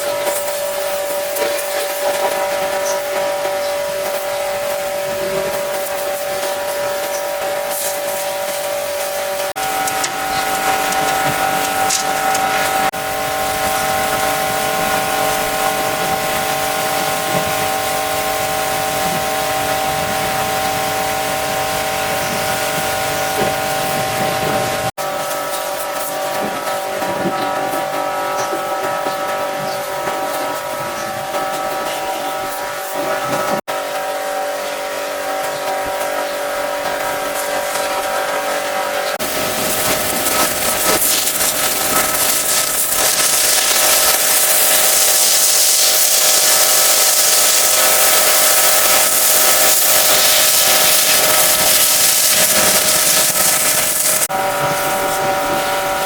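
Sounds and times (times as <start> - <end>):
water jet hissing: 0.0 - 24.9, 37.0 - 56.0
pressure washer pump whining: 0.0 - 56.0
spray hissing: 39.2 - 55.7.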